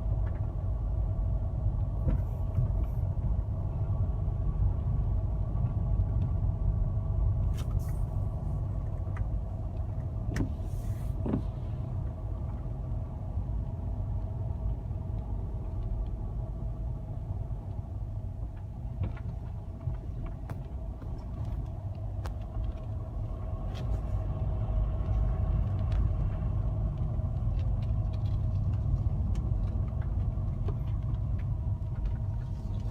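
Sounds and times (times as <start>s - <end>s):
constant hum: 0.0s - 32.9s
road and engine rumble: 0.0s - 32.9s
small clicks and rattles: 25.0s - 32.9s.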